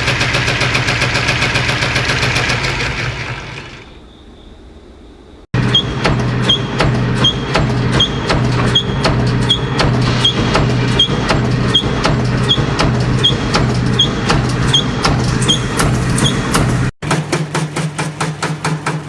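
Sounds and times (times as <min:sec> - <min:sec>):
machine hum: 0:00.0 - 0:19.0
short high squeak: 0:05.6 - 0:16.6
machine clatter of knocks: 0:05.6 - 0:19.0.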